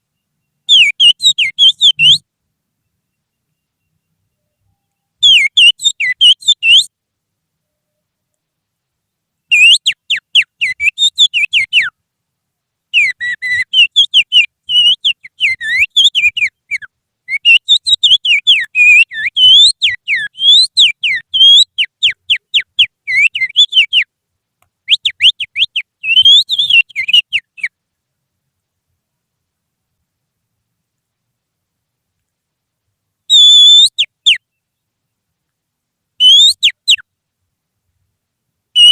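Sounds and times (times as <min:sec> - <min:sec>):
finger whistling birdsong imitation: 0:00.1 - 0:02.3, 0:03.0 - 0:06.9, 0:09.5 - 0:11.9, 0:13.0 - 0:24.1, 0:24.8 - 0:27.8, 0:33.3 - 0:34.7, 0:36.2 - 0:37.0.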